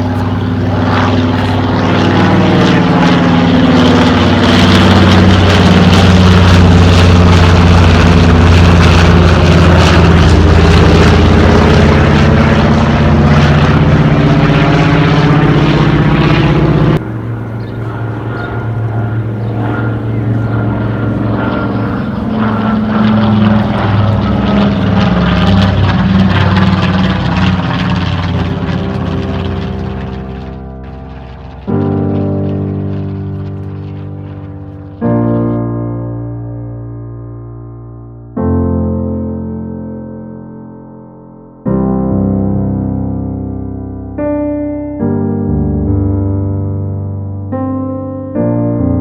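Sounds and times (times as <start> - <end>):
propeller plane flying past: 0.0 - 35.8.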